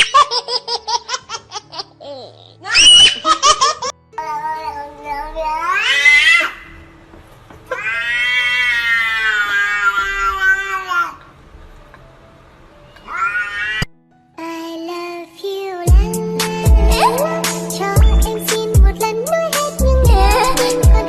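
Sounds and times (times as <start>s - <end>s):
child laughing: 0.0s - 4.0s, 20.1s - 21.0s
cat yowling: 7.7s - 11.1s, 13.0s - 13.9s.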